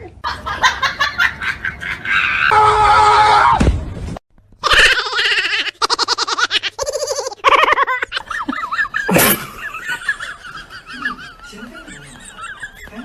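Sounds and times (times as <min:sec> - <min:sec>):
person laughing hard: 0:04.6 - 0:13.0.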